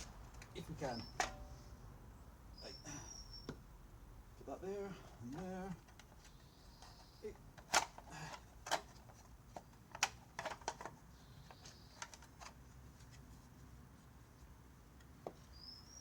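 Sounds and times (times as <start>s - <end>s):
tools and parts clicking: 7.6s - 12.6s.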